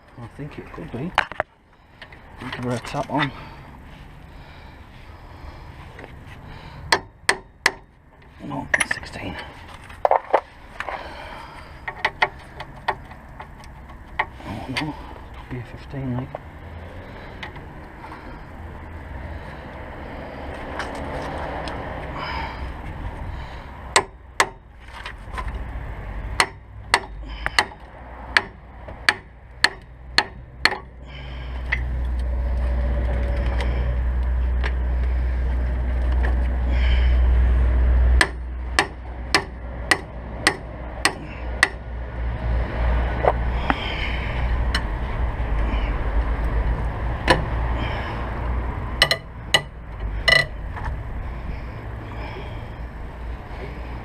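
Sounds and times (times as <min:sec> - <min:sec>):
steady low drone: 0:00.0 - 0:24.8
hammer striking metal: 0:38.2 - 0:41.8, 0:49.0 - 0:50.6.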